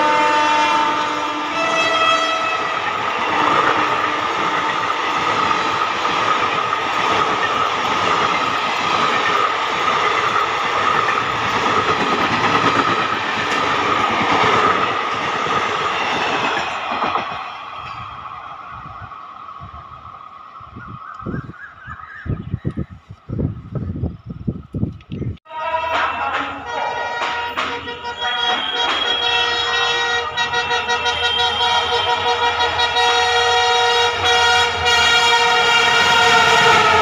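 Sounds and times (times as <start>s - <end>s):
train wheels clattering on rails: 2.7s - 18.5s, 25.9s - 32.8s.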